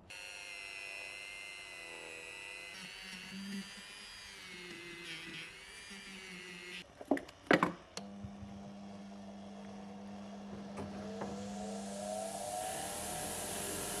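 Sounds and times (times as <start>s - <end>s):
high-pitched power tool whining: 0.0s - 6.8s, 8.8s - 14.0s
steady low hum: 8.0s - 14.0s.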